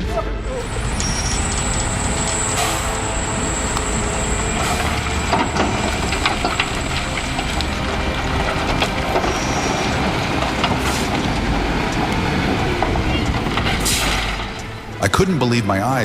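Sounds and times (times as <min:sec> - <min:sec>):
heavy machinery running: 0:00.0 - 0:15.8.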